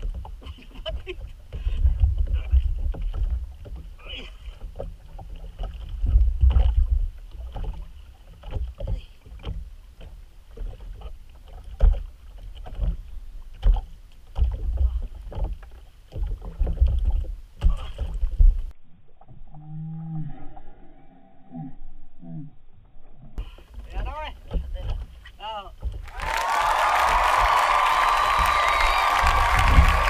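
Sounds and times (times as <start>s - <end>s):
water slapping against wooden boat: 0.0s - 18.7s, 23.4s - 30.0s
gusty low rumble: 27.0s - 30.0s.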